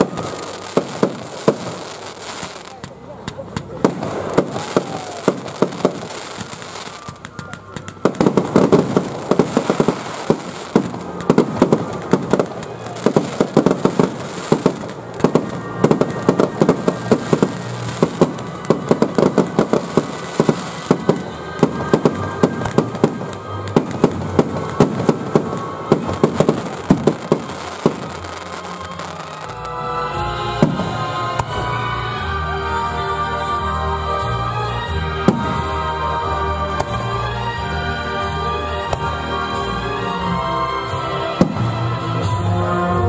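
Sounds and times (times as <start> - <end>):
fireworks shells bursting: 0.0 - 29.8
fireworks crackling: 0.0 - 43.0.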